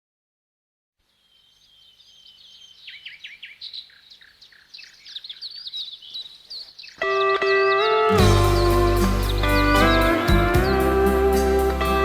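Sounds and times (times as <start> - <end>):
songbird singing high chirps: 1.1 - 7.0.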